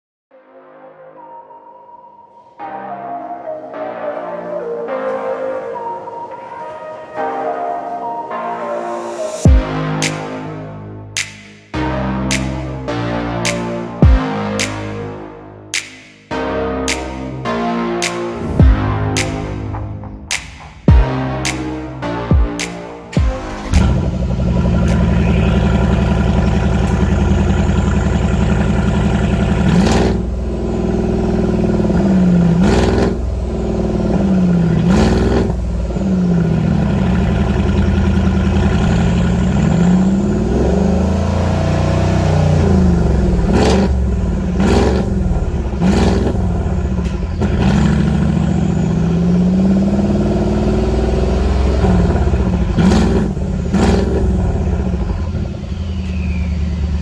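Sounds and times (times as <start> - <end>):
car engine revving: 23.1 - 57.0
exhaust cracks: 23.2 - 57.0.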